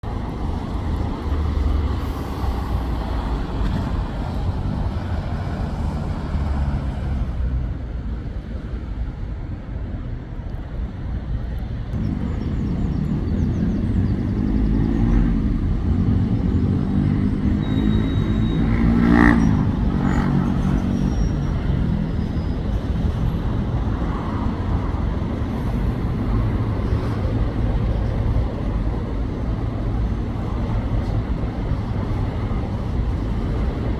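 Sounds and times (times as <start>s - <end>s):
road traffic rumble: 0.0s - 33.9s
vehicle engine passing by: 12.0s - 22.3s.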